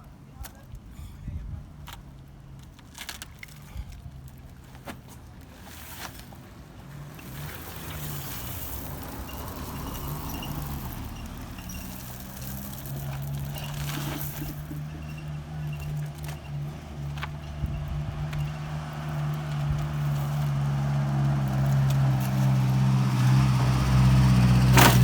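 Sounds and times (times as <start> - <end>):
vehicle engine humming: 2.0 - 25.0.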